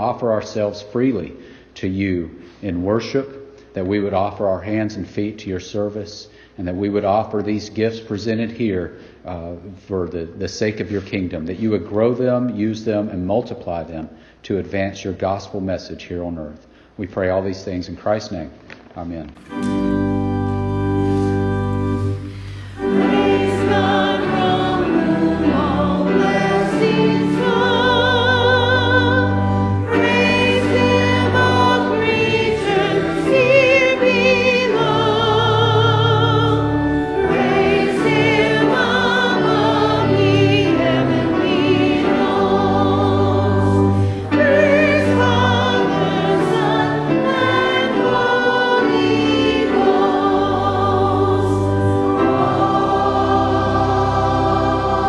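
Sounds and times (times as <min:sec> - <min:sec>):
choir singing: 0:19.4 - 0:55.0
organ chords: 0:19.4 - 0:55.0.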